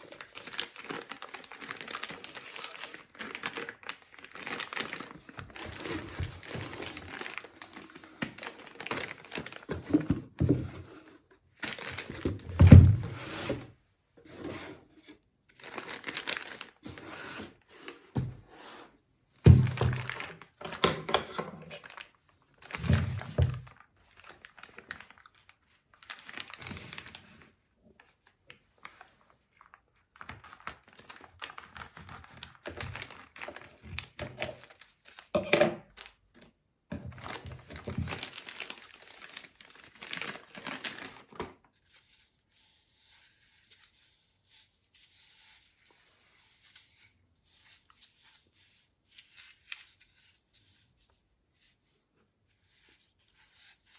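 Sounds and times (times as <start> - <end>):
packaging crinkling and tearing: 0.0 - 10.6, 11.6 - 13.6, 15.5 - 17.6, 19.5 - 20.8, 21.6 - 27.5, 28.1 - 41.8.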